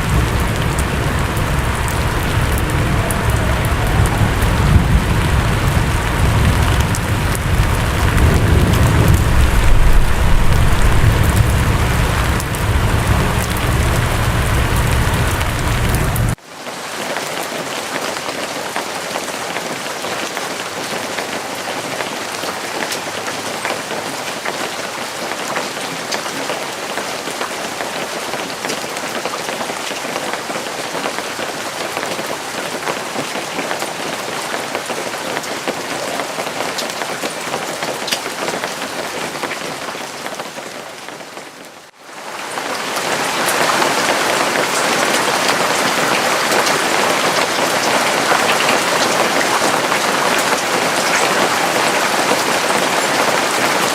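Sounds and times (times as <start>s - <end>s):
raindrops ticking: 0.0s - 16.4s
steady rain falling: 0.0s - 53.9s.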